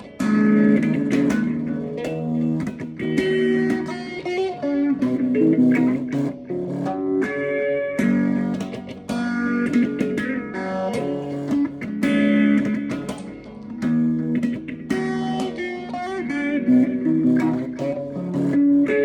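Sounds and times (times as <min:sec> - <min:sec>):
guitar picking notes and chords: 0:00.0 - 0:19.0.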